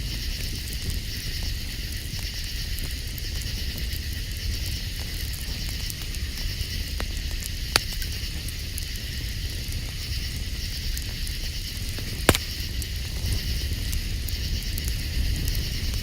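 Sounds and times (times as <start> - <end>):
campfire crackling: 0.0 - 16.0
sharp fire pops: 6.4 - 16.0.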